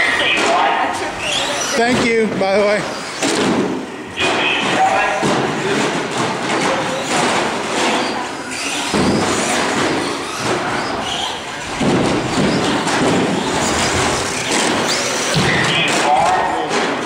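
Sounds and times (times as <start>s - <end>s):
thuds and knocks: 3.2s - 8.0s, 8.8s - 10.9s, 11.7s - 16.1s.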